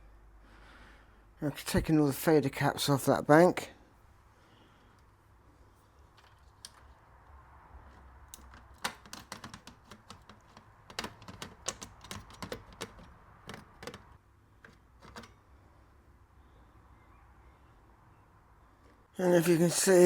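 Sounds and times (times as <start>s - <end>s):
small parts and tools clicking: 7.8s - 15.4s.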